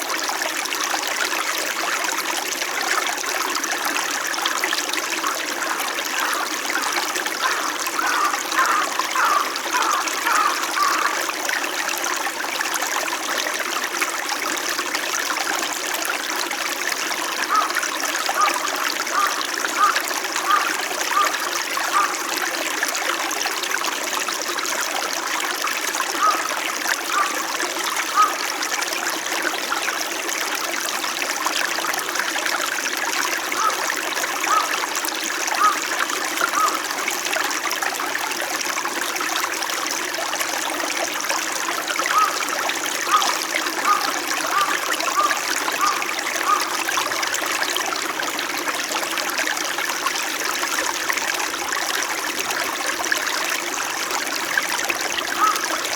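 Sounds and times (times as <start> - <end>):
stream flowing and trickling: 0.0 - 55.9
short water plinks: 24.4 - 55.9.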